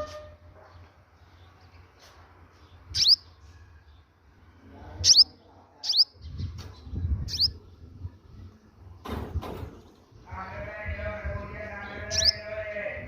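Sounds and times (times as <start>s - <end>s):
bird chirping: 0.6s - 4.2s, 4.8s - 9.0s, 11.7s - 12.6s.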